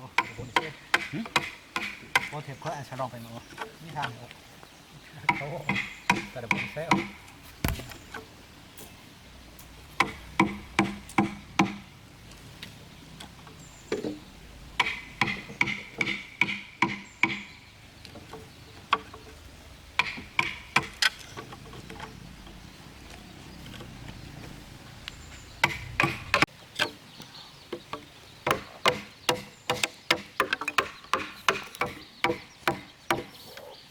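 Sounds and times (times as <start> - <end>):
hammer striking wood: 0.2 - 2.3, 5.3 - 8.2, 10.0 - 11.8, 14.8 - 17.5, 25.6 - 26.5, 28.5 - 33.3.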